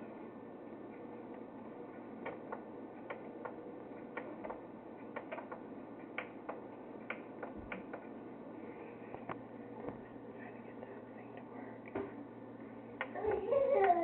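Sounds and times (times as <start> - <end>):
low background hiss: 9.4 - 14.0.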